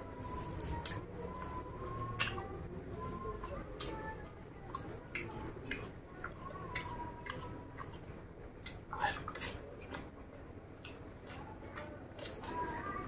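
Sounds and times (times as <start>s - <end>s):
wet mouth chewing clicks: 2.1s - 2.5s, 4.6s - 10.1s, 10.8s - 12.5s.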